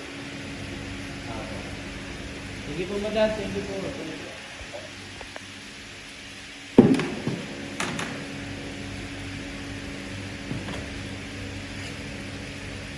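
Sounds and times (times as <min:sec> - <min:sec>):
steady mechanical hum: 0:00.0 - 0:12.9
heavy thump: 0:06.8 - 0:08.2, 0:10.4 - 0:11.1.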